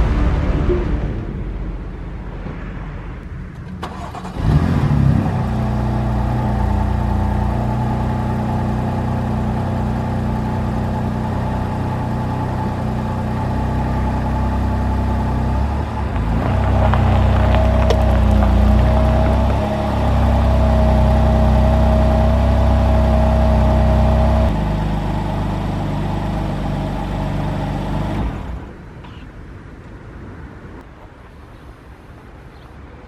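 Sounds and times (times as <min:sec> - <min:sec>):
car engine starting and idling: 0:00.0 - 0:30.0.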